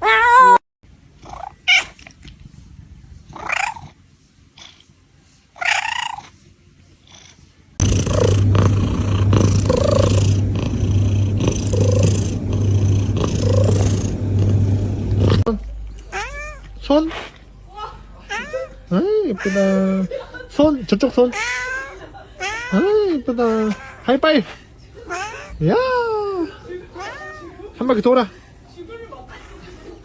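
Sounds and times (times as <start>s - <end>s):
cat purring loudly: 1.2s - 2.2s, 3.2s - 4.0s, 5.6s - 6.4s, 7.0s - 15.5s.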